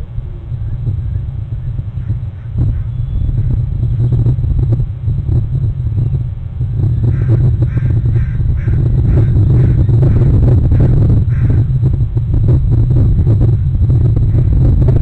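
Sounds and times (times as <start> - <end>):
steady low rumble: 0.0 - 15.0
bird calling: 0.6 - 4.3.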